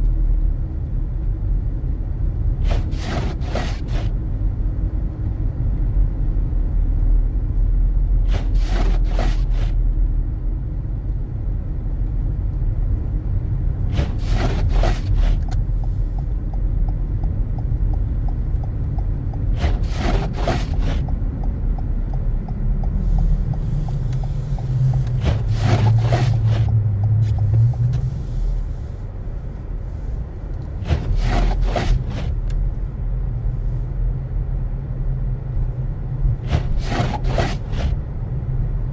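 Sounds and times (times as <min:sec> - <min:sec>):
car engine and tyres rumbling: 0:00.0 - 0:38.9
windshield wipers scraping: 0:02.6 - 0:04.1, 0:08.2 - 0:09.8, 0:13.8 - 0:16.3, 0:19.2 - 0:21.2, 0:23.0 - 0:32.9, 0:36.2 - 0:38.0.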